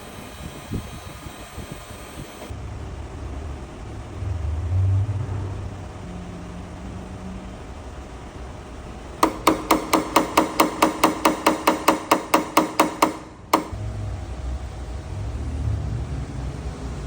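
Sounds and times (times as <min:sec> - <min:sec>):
hammer tapping on metal: 0:09.2 - 0:13.8.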